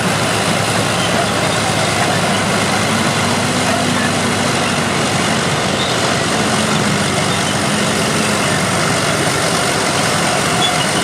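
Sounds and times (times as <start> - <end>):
heavy diesel engines running: 0.0 - 11.0.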